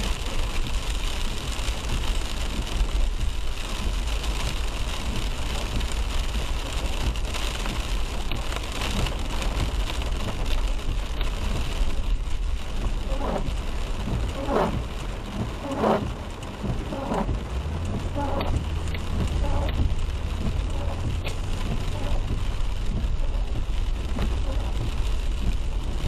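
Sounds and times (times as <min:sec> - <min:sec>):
low vehicle rumble: 0:00.0 - 0:26.0
rain hiss: 0:00.0 - 0:26.0
tyres on wet road: 0:00.0 - 0:26.0
short swishing sounds: 0:14.4 - 0:14.9, 0:15.6 - 0:16.2.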